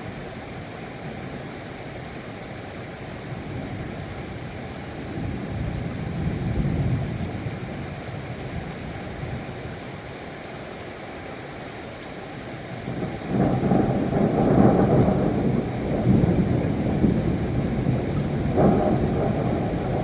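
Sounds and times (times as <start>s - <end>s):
steady rain: 0.0s - 20.0s
rolling thunder: 12.9s - 20.0s.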